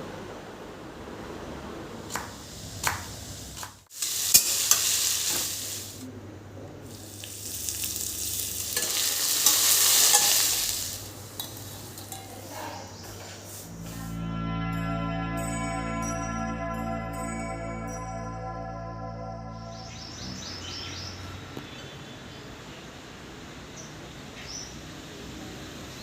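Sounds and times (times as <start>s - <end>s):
food sizzling in a pan: 3.5s - 6.0s, 6.9s - 13.7s.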